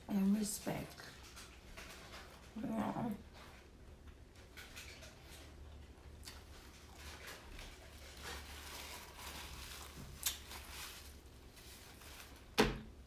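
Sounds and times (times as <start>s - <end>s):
chewing and lip smacking: 4.4s - 8.3s.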